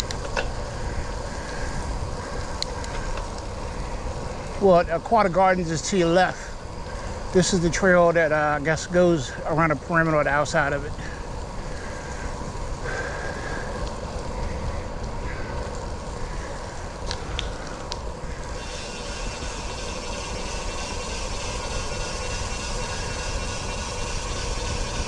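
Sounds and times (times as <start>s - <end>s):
wind and tyres rumbling: 0.0s - 25.0s
faint clicks: 2.3s - 3.5s, 11.6s - 18.4s.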